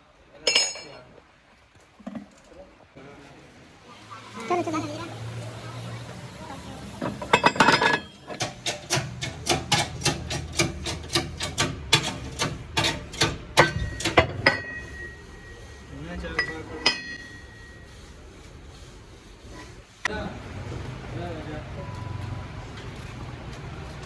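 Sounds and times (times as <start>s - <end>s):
hammer striking metal: 7.3s - 15.6s, 16.4s - 17.8s.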